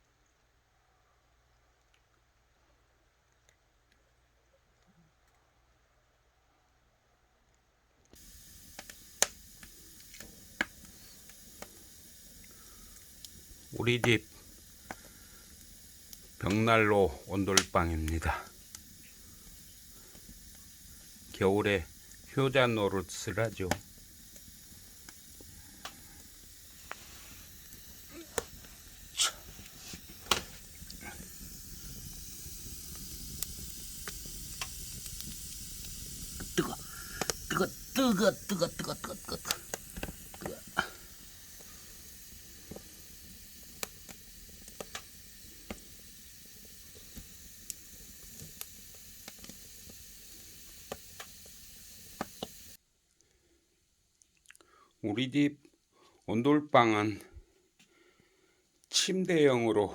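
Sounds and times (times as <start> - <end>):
wood fire crackling: 8.0 - 59.9.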